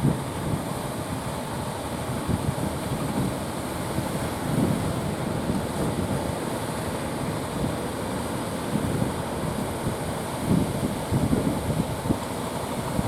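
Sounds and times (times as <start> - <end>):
surf rushing: 0.0 - 13.0
wind buffeting microphone: 2.0 - 6.4, 8.7 - 13.0.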